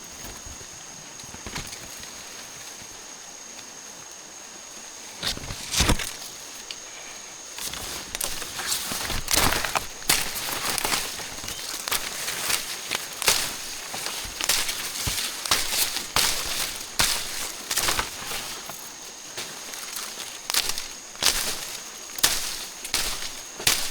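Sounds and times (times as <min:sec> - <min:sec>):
twigs cracking and snapping: 0:05.2 - 0:06.9, 0:07.6 - 0:23.9.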